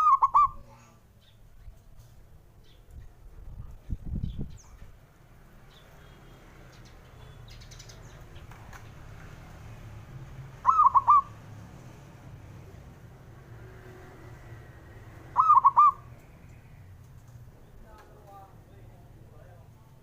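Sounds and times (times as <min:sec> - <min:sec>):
dove cooing: 0:00.0 - 0:00.7, 0:10.6 - 0:11.4, 0:15.2 - 0:16.2
low background noise: 0:00.0 - 0:20.0.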